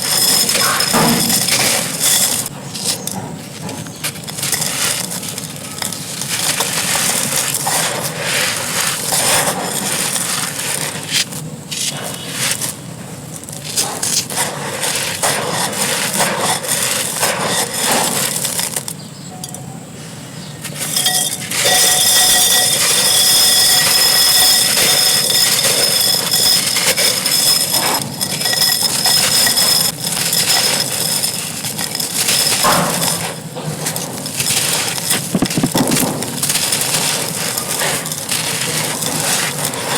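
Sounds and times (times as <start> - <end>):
dry clay crumbling: 30.3 - 39.9.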